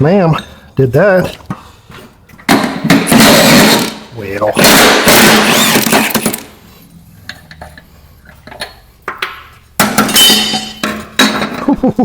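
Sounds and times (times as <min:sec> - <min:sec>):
metal parts clinking and rattling: 0:09.9 - 0:11.7
loud metal clatter and ringing: 0:10.0 - 0:11.5.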